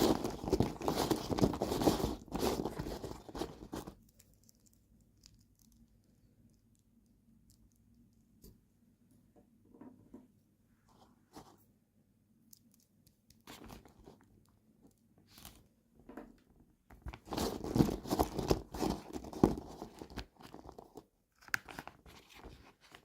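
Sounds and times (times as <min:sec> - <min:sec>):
packaging tearing and crinkling: 0:00.0 - 0:04.0, 0:17.2 - 0:23.0.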